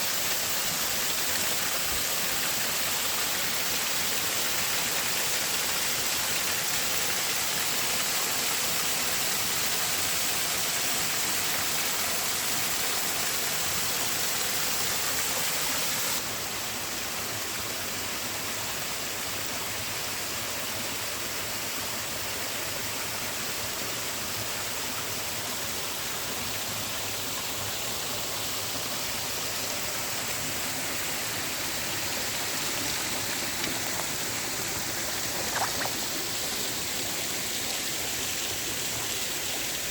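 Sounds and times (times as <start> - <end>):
creek water tumbling over rocks: 30.0 - 37.1.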